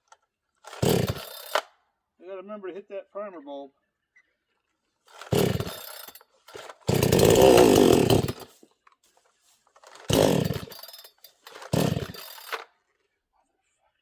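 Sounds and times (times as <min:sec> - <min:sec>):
chainsaw running in bursts: 0:00.6 - 0:01.6, 0:05.1 - 0:08.6, 0:09.8 - 0:12.6.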